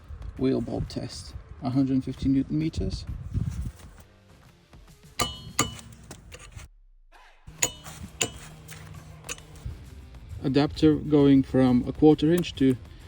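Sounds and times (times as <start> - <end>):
metal tools clinking: 5.2 - 6.6, 7.5 - 9.7.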